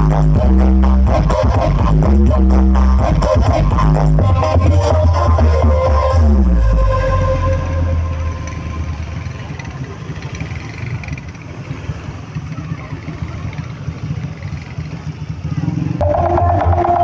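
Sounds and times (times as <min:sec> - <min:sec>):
bass-heavy music: 0:00.0 - 0:09.3, 0:16.0 - 0:17.0
engine rumble: 0:00.0 - 0:17.0.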